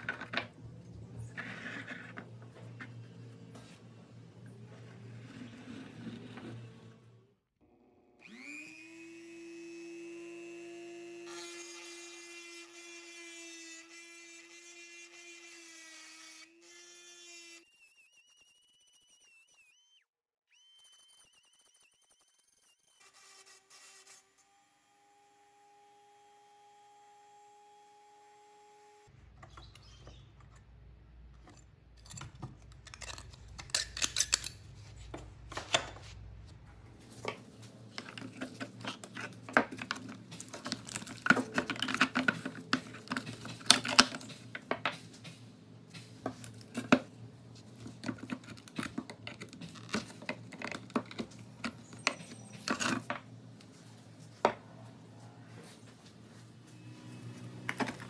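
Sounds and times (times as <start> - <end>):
pry tool clinking and scraping metal: 31.4 - 35.7.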